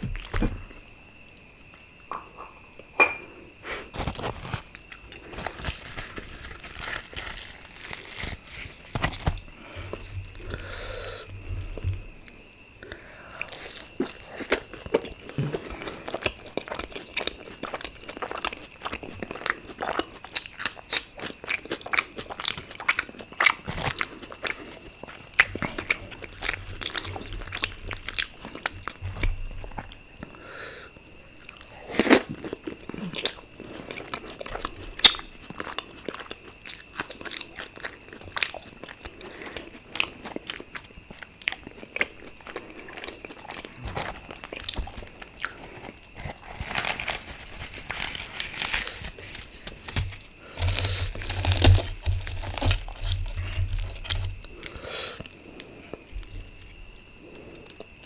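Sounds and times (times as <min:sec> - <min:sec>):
person chewing food: 0:04.0 - 0:30.4, 0:31.3 - 0:58.0.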